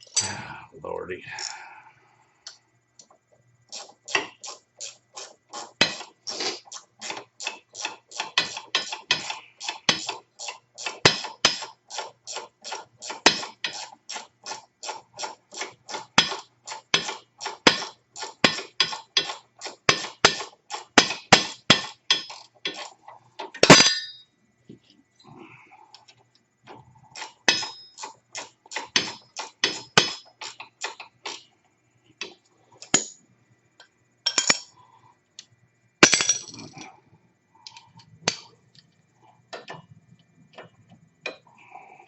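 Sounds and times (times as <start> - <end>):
metal clatter: 17.0 - 24.3, 27.2 - 30.6, 36.0 - 36.8.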